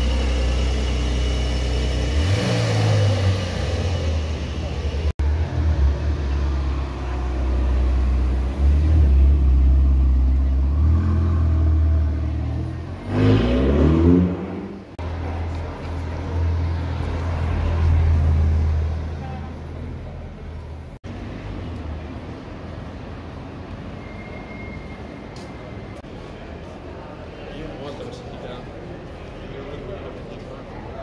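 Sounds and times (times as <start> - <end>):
car engine revving: 0.0 - 15.0
low engine rumble: 0.0 - 24.0.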